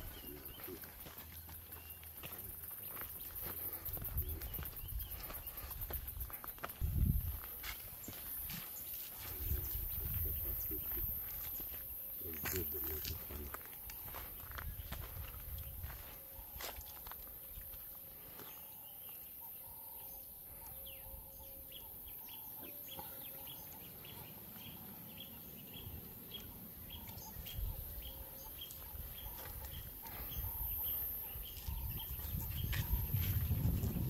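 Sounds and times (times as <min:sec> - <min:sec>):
bird chirping: 0:18.3 - 0:34.0.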